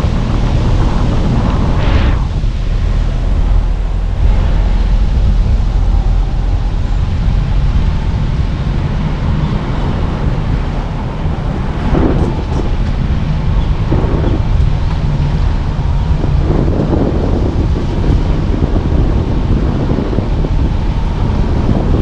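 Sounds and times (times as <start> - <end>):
car engine and tyre rumble: 0.0 - 22.0
brief louder rush: 1.2 - 12.8.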